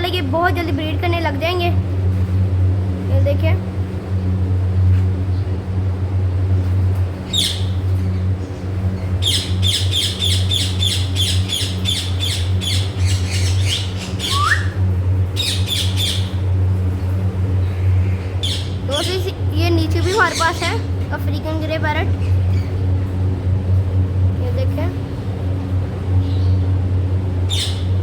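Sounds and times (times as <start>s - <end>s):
steady low hum: 0.0s - 28.0s
parrots squawking: 7.3s - 7.8s, 9.0s - 14.8s, 15.4s - 16.5s, 17.9s - 19.4s, 20.0s - 20.9s, 27.5s - 28.0s
rising whistle: 14.2s - 14.8s.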